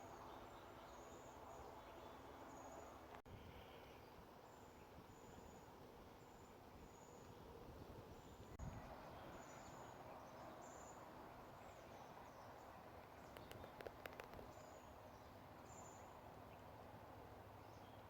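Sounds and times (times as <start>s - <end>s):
faint outdoor ambience: 0.0s - 18.0s
small clicks: 13.0s - 14.6s.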